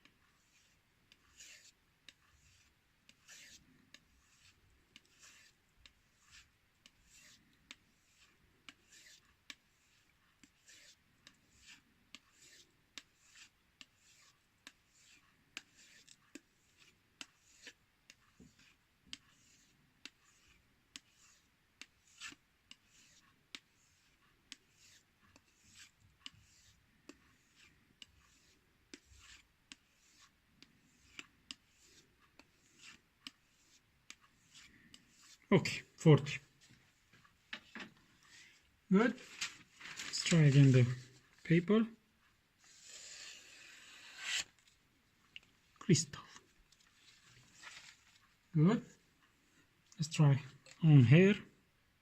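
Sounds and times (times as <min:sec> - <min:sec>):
knife strokes on a strop: 0:00.0 - 0:36.6, 0:42.6 - 0:44.7.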